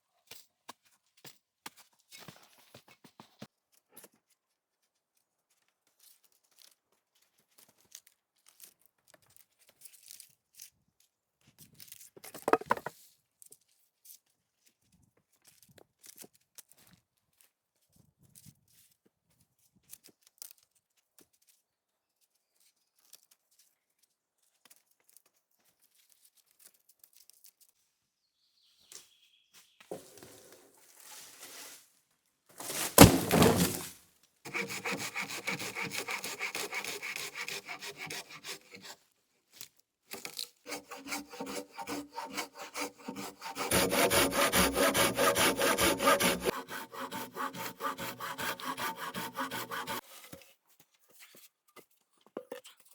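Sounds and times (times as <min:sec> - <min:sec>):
wood knocks and clicks: 0:12.4 - 0:12.9
wooden thunk: 0:12.4 - 0:12.9, 0:32.6 - 0:33.9
crunching rustle: 0:32.6 - 0:33.9
saw cutting wood: 0:32.6 - 0:33.9, 0:34.5 - 0:38.9, 0:40.7 - 0:50.0.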